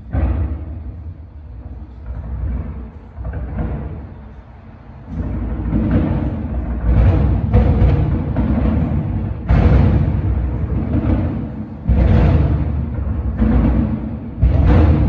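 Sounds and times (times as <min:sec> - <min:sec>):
rolling rumble: 0:00.0 - 0:15.0
fireworks booming: 0:05.1 - 0:15.0.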